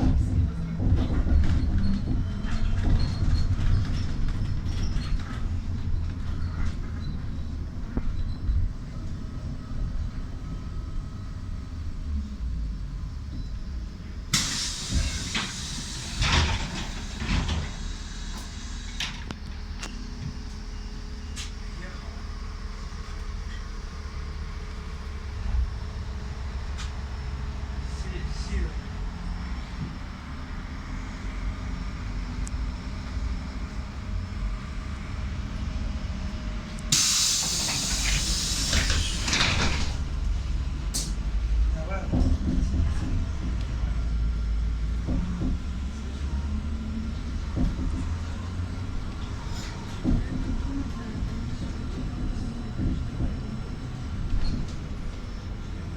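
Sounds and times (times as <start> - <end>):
trolleybus rumbling: 0.0 - 55.9
compressed air hiss: 14.4 - 19.2, 36.9 - 40.0.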